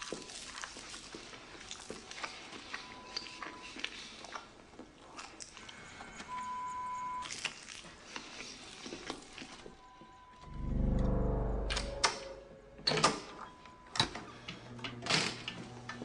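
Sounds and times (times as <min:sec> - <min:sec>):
steady electronic beep: 0:10.1 - 0:12.9
deep low rumble: 0:10.4 - 0:12.8.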